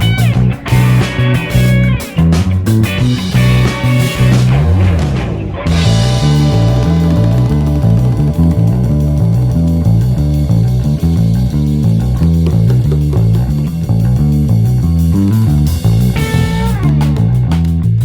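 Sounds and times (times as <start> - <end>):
band backing track: 0.0 - 18.0
electric bass line: 0.0 - 18.0
falling pitch sweep: 3.1 - 12.9.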